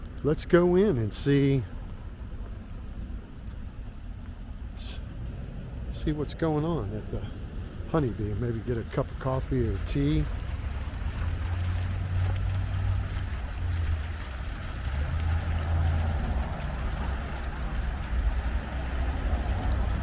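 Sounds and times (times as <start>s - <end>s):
street noise low rumble: 0.0s - 20.0s.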